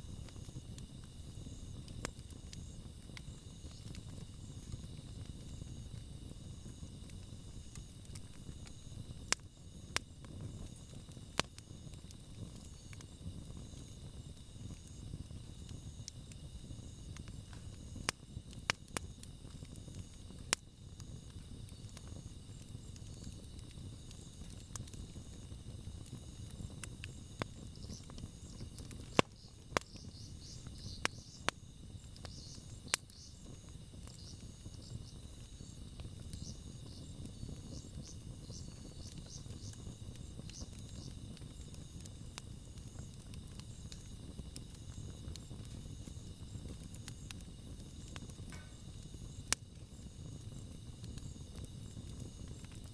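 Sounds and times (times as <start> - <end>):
campfire burning: 0.0 - 52.9
fire pops and crackles: 0.0 - 52.9
insects chirping: 0.0 - 52.9.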